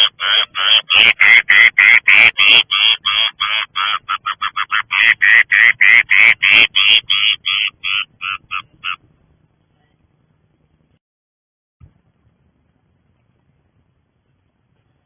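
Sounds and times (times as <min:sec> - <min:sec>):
bird giving harsh calls: 0:00.0 - 0:09.0.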